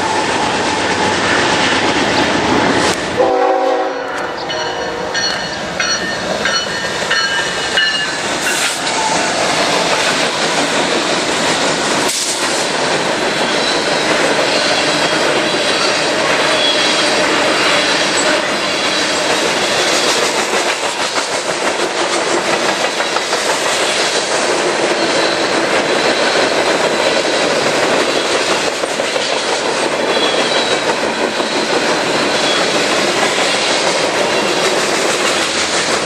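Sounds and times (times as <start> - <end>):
train wheels clattering on rails: 0.0 - 36.0
train horn chord: 3.2 - 5.4.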